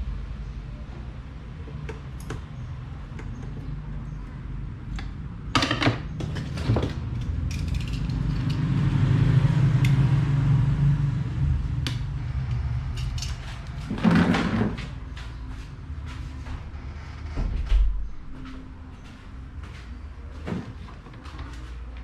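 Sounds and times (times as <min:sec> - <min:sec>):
low steady hum: 0:00.0 - 0:22.0
fan parts knocking and clattering: 0:05.0 - 0:08.7, 0:12.9 - 0:15.4.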